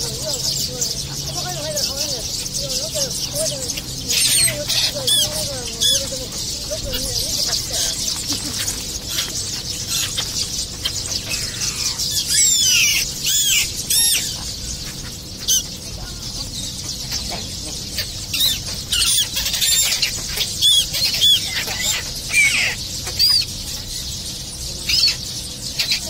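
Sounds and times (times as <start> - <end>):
distant bird calls: 0.0 - 26.0
sharp high bird chirps: 2.2 - 15.9.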